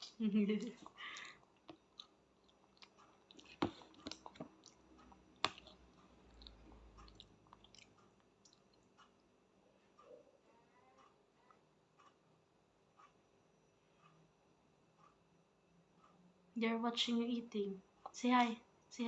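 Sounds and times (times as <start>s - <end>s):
child chewing food: 0.0s - 10.2s.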